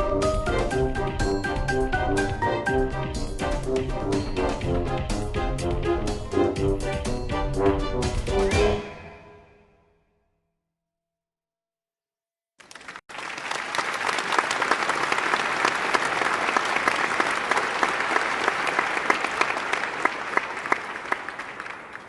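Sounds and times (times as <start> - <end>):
crowd applauding: 12.6 - 22.0.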